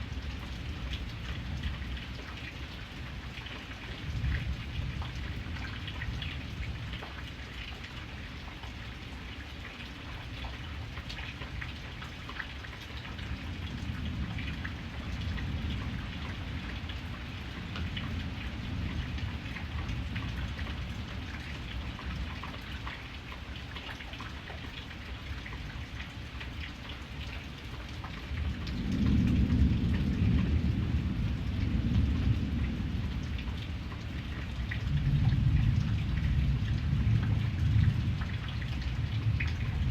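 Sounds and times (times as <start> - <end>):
steady rain patter: 0.0 - 39.9
thunder rumbling: 28.4 - 39.9.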